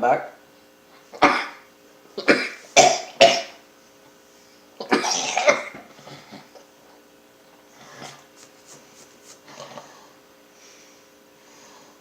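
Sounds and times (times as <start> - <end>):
person coughing: 1.2 - 1.6, 2.2 - 3.6, 4.8 - 5.8.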